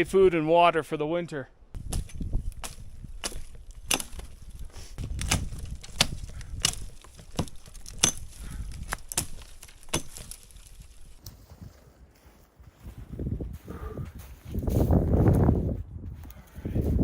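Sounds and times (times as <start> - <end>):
blade chopping branches: 1.8 - 11.3.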